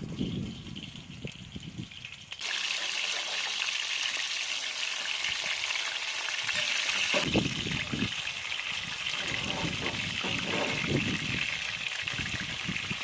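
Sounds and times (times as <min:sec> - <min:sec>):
water running: 0:02.4 - 0:13.0.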